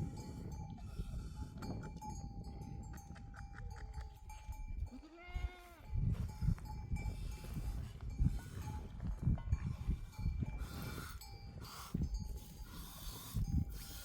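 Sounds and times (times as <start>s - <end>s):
livestock bells clinking: 0.0s - 5.2s, 5.8s - 14.0s
sheep or goat bleating: 4.9s - 5.9s.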